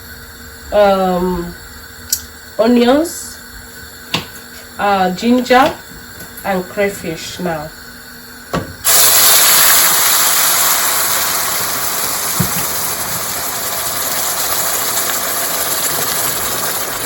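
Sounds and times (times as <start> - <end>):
paste sizzling in hot oil: 8.8 - 17.0.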